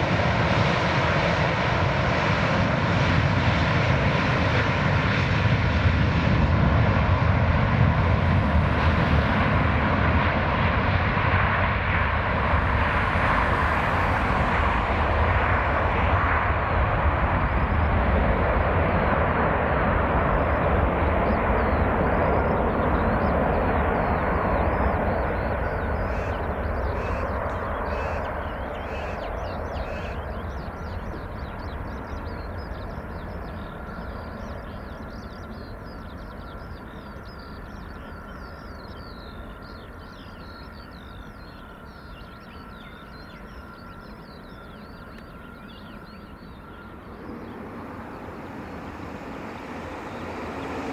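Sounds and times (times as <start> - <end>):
jet engines roaring: 0.0 - 50.9
birds chirping: 16.7 - 19.2, 19.9 - 50.9.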